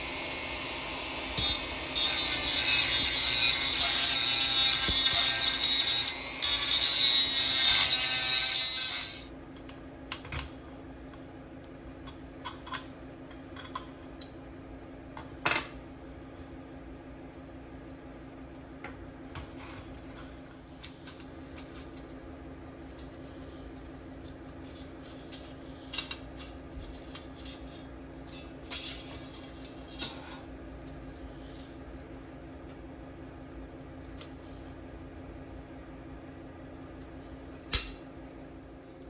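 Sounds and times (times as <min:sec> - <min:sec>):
power tool grinding: 0:00.0 - 0:09.3.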